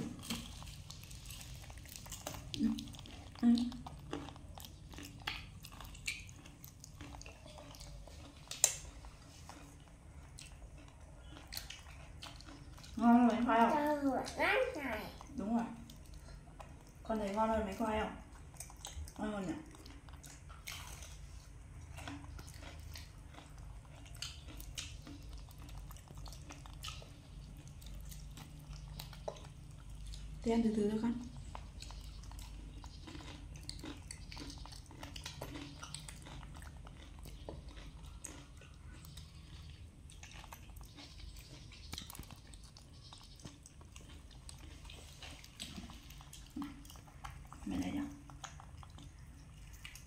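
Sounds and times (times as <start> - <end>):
clicks and rustles of handling food: 0.0 - 13.0
chewing and wet mouth clicks: 0.0 - 30.4, 31.1 - 50.0
low steady hum: 0.0 - 50.0.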